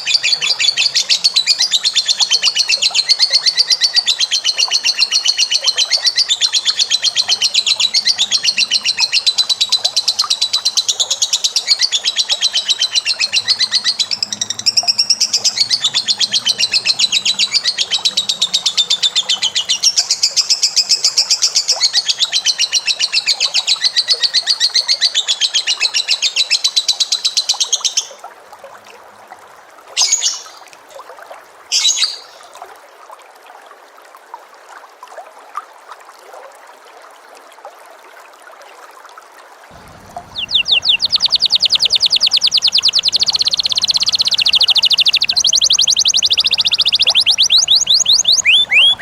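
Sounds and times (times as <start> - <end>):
bird chattering trill: 12.2 - 20.1, 39.8 - 49.0
short bird calls: 39.8 - 49.0.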